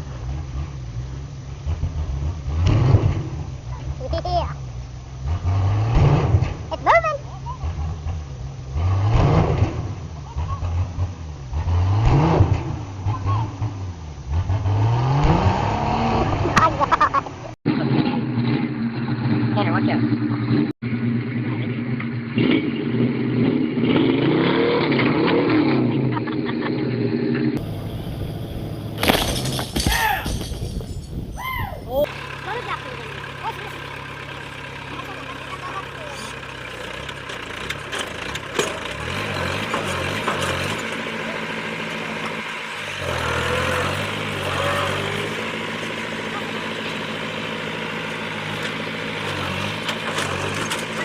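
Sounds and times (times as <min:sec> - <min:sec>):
vehicle engine revving under load: 0:00.0 - 0:17.0, 0:17.7 - 0:29.0, 0:32.0 - 0:51.0
sharp cracks: 0:29.0 - 0:31.1.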